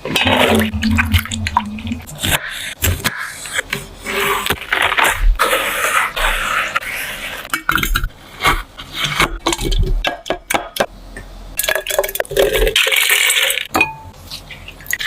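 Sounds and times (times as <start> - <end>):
utensils scraping and rustling: 0.0 - 9.9.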